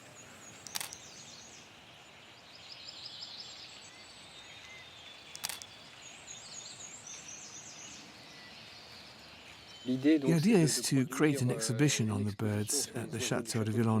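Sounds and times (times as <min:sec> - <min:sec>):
outdoor ambience: 0:00.0 - 0:14.0
songbirds singing: 0:00.0 - 0:14.0
camera shutter clicking: 0:00.6 - 0:01.1, 0:05.3 - 0:05.7.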